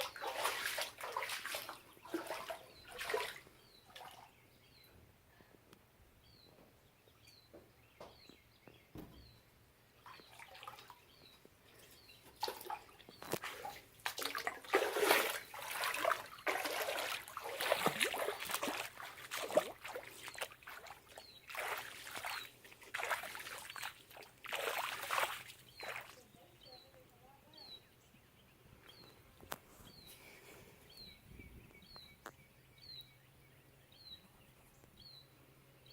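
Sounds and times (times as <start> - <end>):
water sloshing and splashing: 0.0 - 4.4, 10.0 - 26.3.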